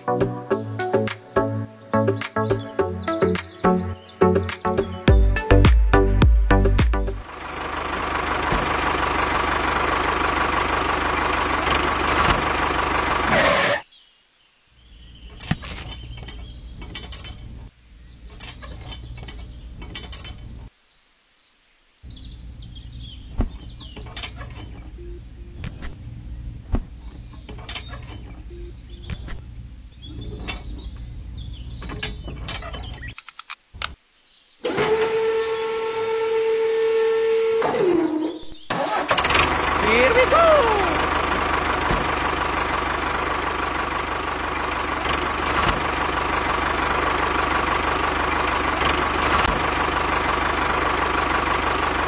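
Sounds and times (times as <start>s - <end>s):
low steady hum: 21.6s - 32.6s.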